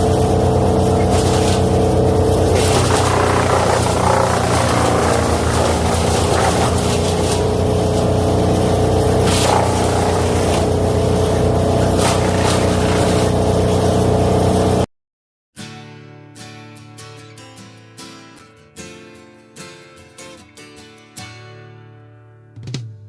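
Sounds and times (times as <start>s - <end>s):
wood chipper running: 0.0s - 14.9s
wood cracking: 0.8s - 8.5s, 9.2s - 13.3s.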